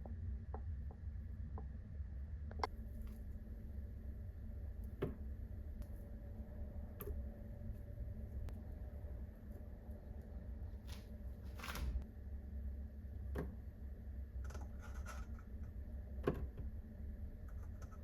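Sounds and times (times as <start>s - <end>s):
low steady hum: 0.0s - 18.0s
brief rustle: 10.9s - 12.0s.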